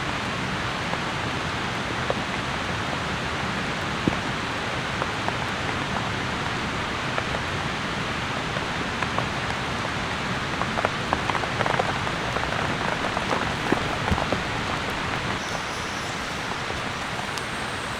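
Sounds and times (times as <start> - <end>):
steady rain falling: 0.0 - 17.9
sharp ticks: 15.3 - 17.9.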